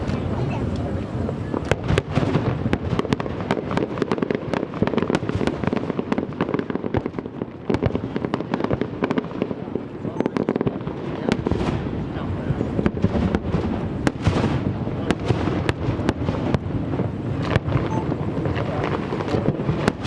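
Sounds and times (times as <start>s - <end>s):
people's voices: 0.0s - 2.0s, 8.0s - 20.0s
fireworks bangs and crackles: 0.0s - 20.0s.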